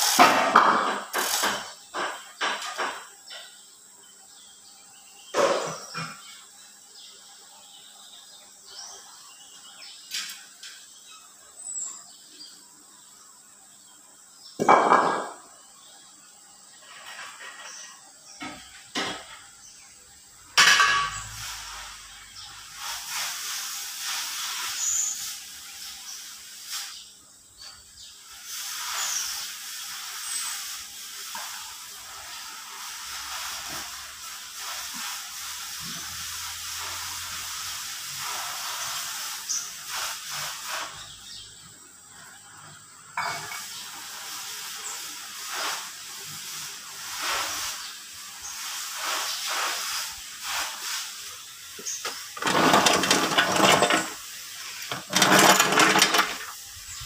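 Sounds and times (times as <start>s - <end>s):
hiss: 0.0s - 4.4s, 18.4s - 57.0s
metal clinks and knocks: 52.4s - 54.2s.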